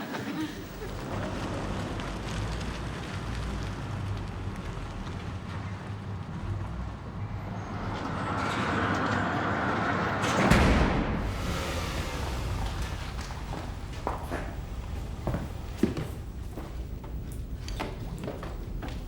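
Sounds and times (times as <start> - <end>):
vehicle passing rumble: 0.4 - 19.0
rushing noise: 6.8 - 17.6.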